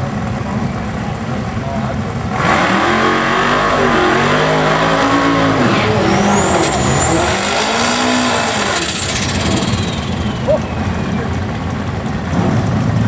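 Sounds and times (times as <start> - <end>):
drag car accelerating hard: 0.0 - 13.0
high turbo whine: 0.0 - 13.0.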